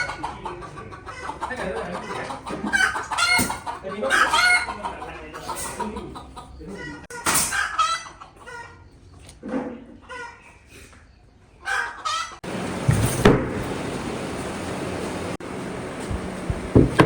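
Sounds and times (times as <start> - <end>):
chickens calling: 0.0 - 17.0
steady noise: 12.4 - 17.0.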